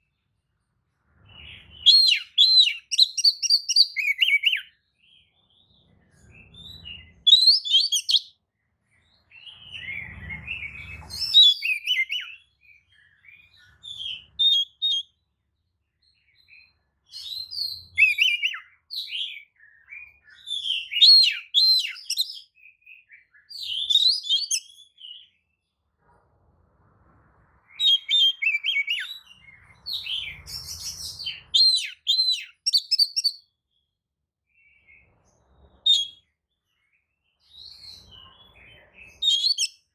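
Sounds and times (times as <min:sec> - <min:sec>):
bird whistling and chirping: 0:01.3 - 0:04.8, 0:06.3 - 0:08.3, 0:09.3 - 0:15.2, 0:16.4 - 0:25.3, 0:27.7 - 0:33.5, 0:35.8 - 0:36.3, 0:37.5 - 0:39.9.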